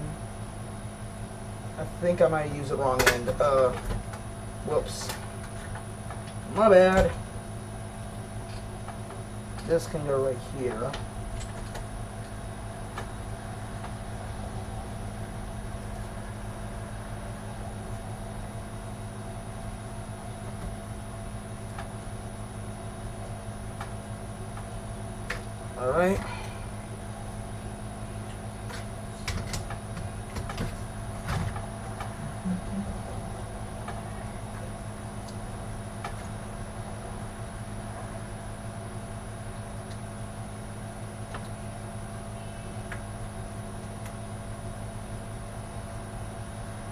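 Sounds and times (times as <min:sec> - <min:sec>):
steady low hum: 0:00.0 - 0:46.9
computer parts clicking and knocking: 0:03.0 - 0:04.2, 0:28.7 - 0:32.1
faint high whine: 0:06.3 - 0:29.2, 0:30.9 - 0:46.9.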